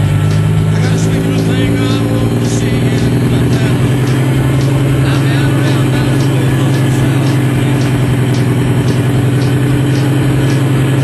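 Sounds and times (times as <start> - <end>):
diesel truck engine running: 0.0 - 11.0
faint high ticking: 0.0 - 11.0.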